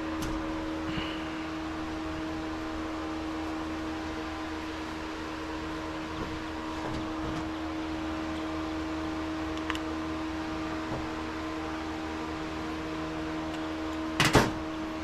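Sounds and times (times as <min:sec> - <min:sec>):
electric fan humming: 0:00.0 - 0:15.0.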